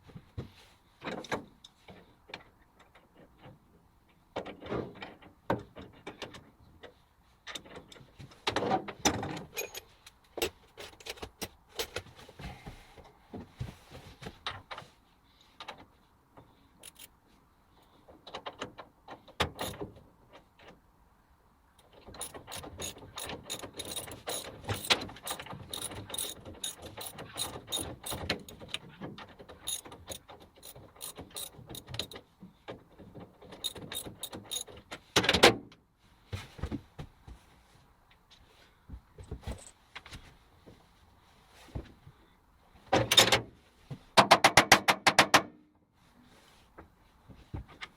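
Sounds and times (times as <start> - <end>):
lathe metal parts clicking: 22.2 - 28.7, 29.6 - 32.2, 33.6 - 34.7.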